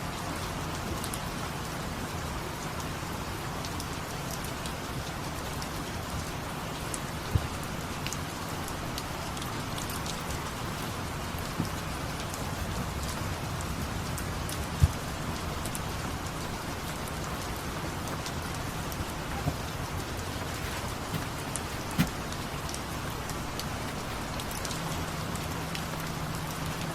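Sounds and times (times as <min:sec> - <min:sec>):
steady rain falling: 0:00.0 - 0:26.9
sharp raindrop taps: 0:03.6 - 0:26.9.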